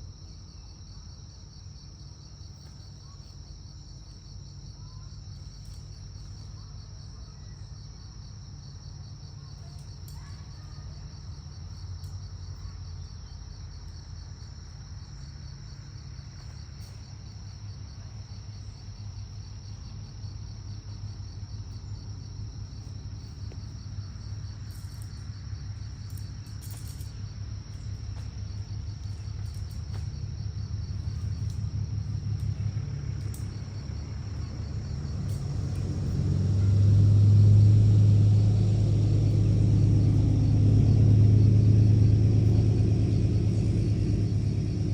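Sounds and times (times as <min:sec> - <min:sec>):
insects trilling: 0:00.0 - 0:44.9
low rumble: 0:11.2 - 0:44.9.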